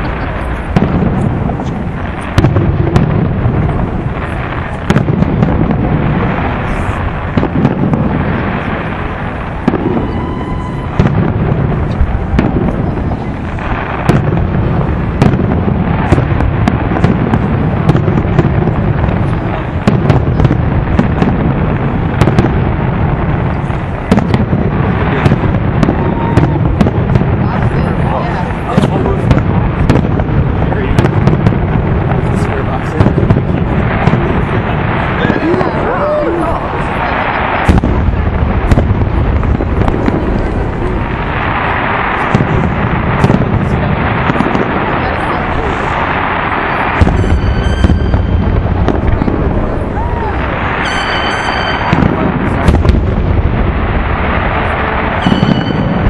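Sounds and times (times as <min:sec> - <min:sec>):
fireworks crackles and pops: 0:00.0 - 0:56.0
fireworks shells booming: 0:00.0 - 0:56.0.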